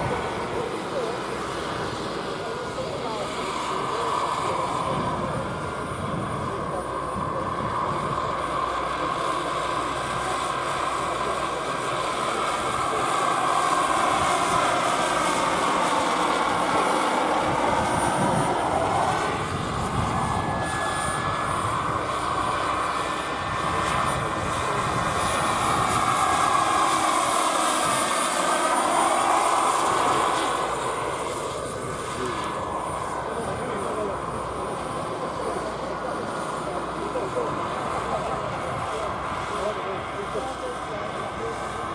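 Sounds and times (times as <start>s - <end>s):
model helicopter engine and rotor whine: 0.0s - 41.9s.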